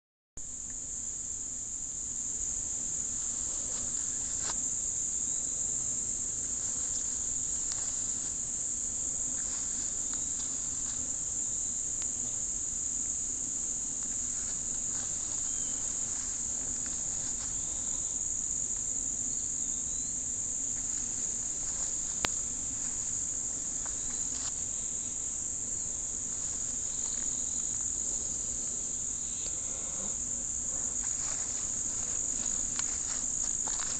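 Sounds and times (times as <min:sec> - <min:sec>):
insects chirping: 0:00.4 - 0:33.9
faint ticks: 0:21.7 - 0:22.4.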